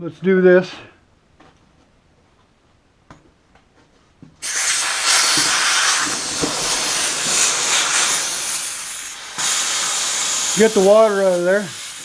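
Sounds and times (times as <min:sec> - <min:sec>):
compressed air hissing out: 0:04.4 - 0:12.0.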